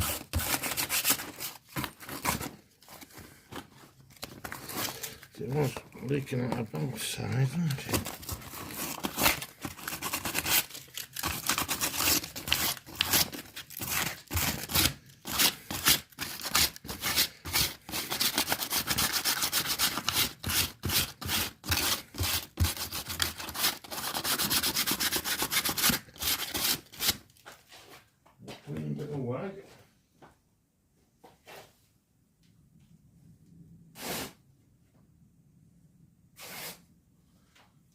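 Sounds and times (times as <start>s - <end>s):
sandpaper rubbing on rubber: 0.0s - 1.4s, 8.7s - 27.2s, 34.0s - 34.4s, 36.4s - 36.8s.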